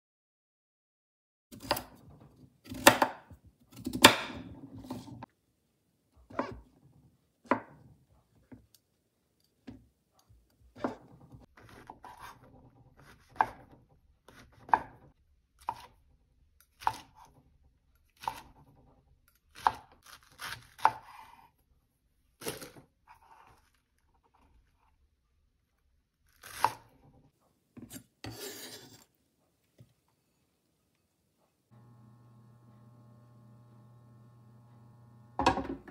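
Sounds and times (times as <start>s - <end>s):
knife chopping on cutting board: 1.6s - 1.9s, 2.7s - 5.1s, 6.3s - 6.6s, 35.4s - 35.9s.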